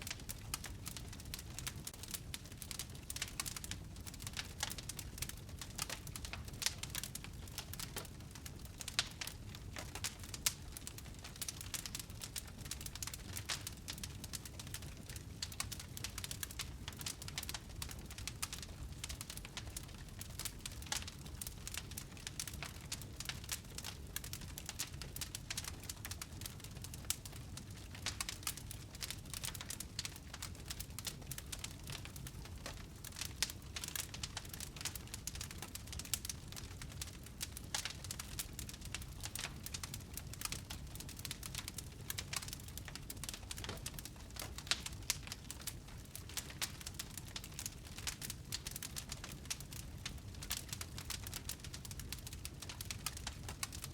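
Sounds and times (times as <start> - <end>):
wood fire crackling: 0.0 - 53.9.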